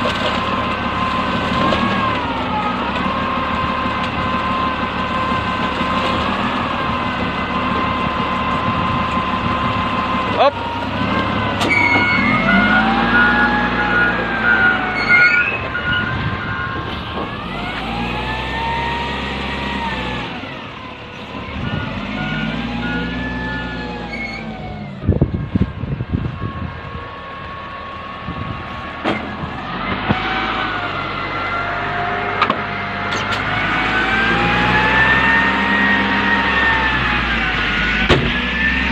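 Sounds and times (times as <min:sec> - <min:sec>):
truck engine revving: 0:00.0 - 0:38.9.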